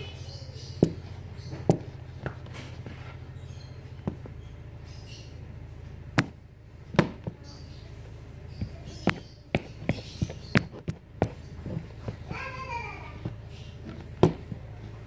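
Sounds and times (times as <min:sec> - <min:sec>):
sharp knocks and taps: 0:00.8 - 0:03.0, 0:06.2 - 0:07.4, 0:08.6 - 0:12.3, 0:13.2 - 0:14.7
faint voices: 0:11.3 - 0:15.0.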